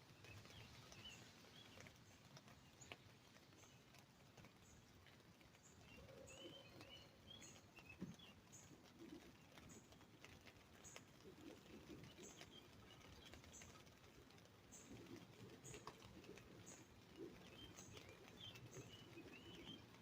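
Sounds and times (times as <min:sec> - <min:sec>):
faint birdsong: 0:00.0 - 0:20.0
rain drips tapping on umbrella: 0:00.0 - 0:20.0
low bird calls: 0:05.6 - 0:20.0.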